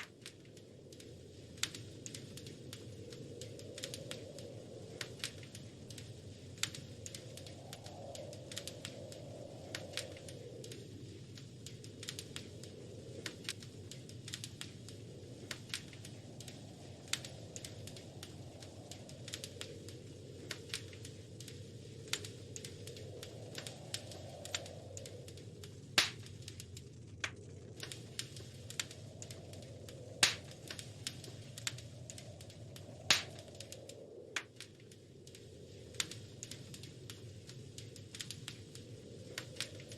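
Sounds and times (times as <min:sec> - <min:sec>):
wood fire crackling: 0:00.0 - 0:39.9
loud fire pops: 0:08.4 - 0:33.8.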